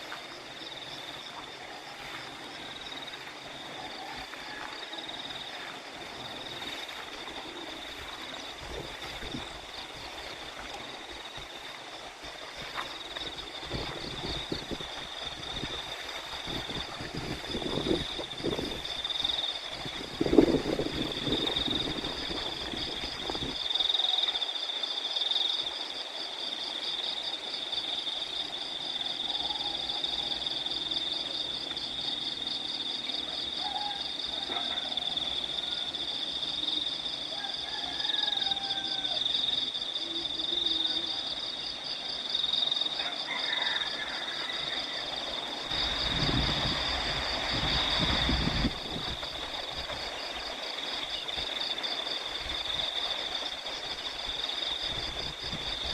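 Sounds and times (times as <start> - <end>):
crickets chirring: 0.0 - 55.9
wind buffeting microphone: 6.1 - 11.6, 12.6 - 23.7, 45.4 - 51.6, 52.2 - 55.9.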